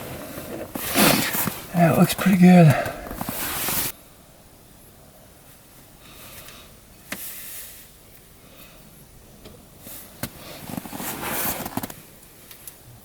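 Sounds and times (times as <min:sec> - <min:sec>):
tools rustling and scraping: 0:00.0 - 0:01.7, 0:03.0 - 0:03.9, 0:10.3 - 0:12.0.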